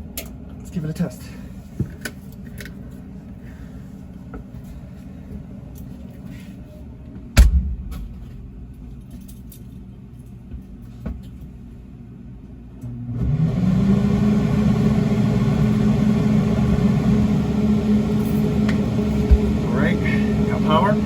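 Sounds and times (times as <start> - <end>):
steady low hum: 0.0 - 13.0, 14.3 - 21.0
loud sharp knock: 7.4 - 8.5.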